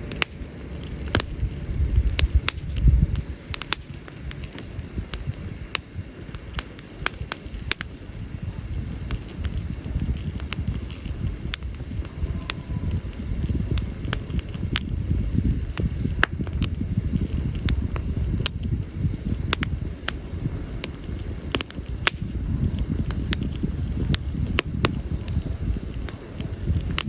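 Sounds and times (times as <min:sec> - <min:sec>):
campfire crackling and popping: 0:00.0 - 0:27.0
low fire rumble: 0:00.0 - 0:27.0.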